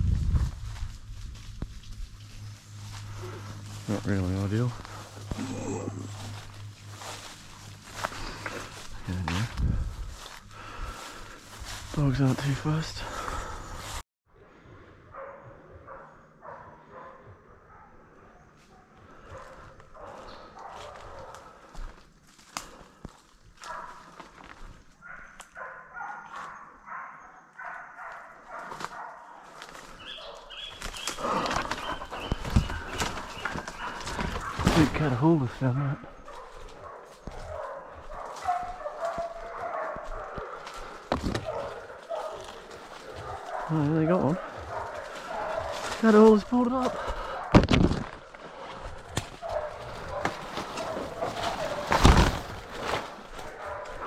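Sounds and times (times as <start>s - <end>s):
footsteps crunching through undergrowth: 0.0s - 14.0s, 18.5s - 26.6s, 28.0s - 54.0s
distant dogs barking: 2.2s - 14.0s, 15.0s - 22.8s, 23.6s - 54.0s
loud rustling thump: 51.4s - 53.1s.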